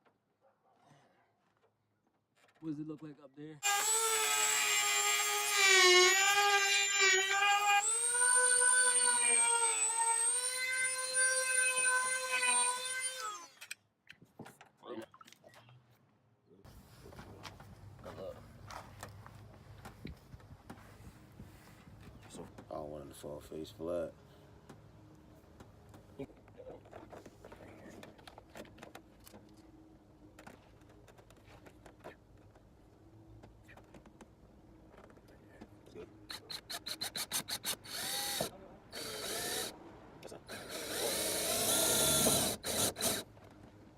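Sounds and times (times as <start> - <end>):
electric power tool whine: 3.6 - 13.6, 36.6 - 39.8, 40.5 - 43.3.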